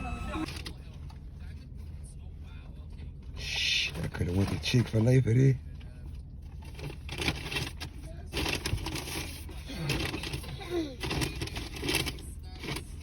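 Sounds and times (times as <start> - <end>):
high voice: 0.0 - 0.5
indistinct voices: 0.0 - 0.5.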